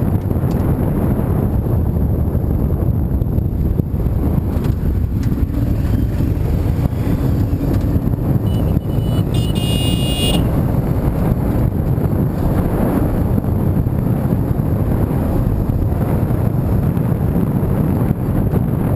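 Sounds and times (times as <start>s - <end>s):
car road and engine rumble: 0.0s - 18.9s
wind noise on microphone: 0.0s - 18.9s
high-pitched tone: 8.4s - 10.5s.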